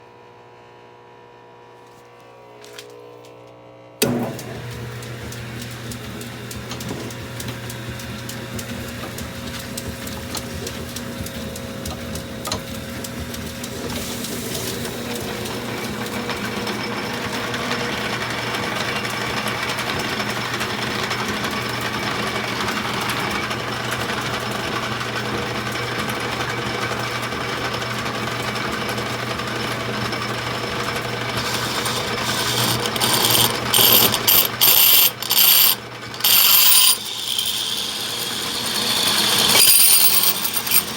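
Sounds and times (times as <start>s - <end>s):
lathe cutting steel with ticking: 30.3s - 40.9s
lathe motor hum: 30.6s - 40.9s.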